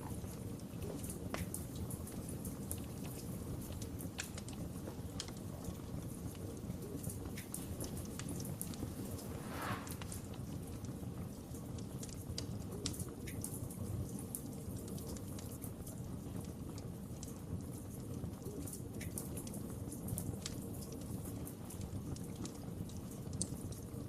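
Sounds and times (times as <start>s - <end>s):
low rumble of flames: 0.0s - 24.0s
wood fire crackling: 0.0s - 24.0s
short hiss: 8.7s - 10.3s.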